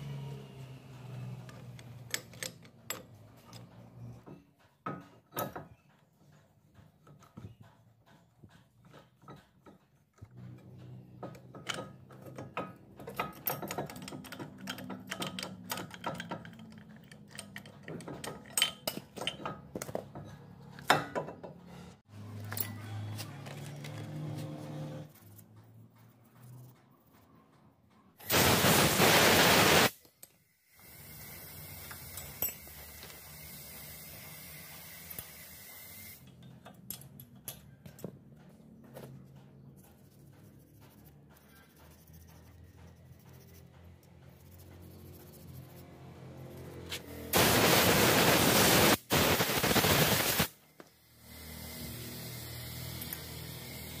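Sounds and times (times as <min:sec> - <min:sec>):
loud burst of hissing: 0:28.2 - 0:30.0, 0:47.4 - 0:50.6.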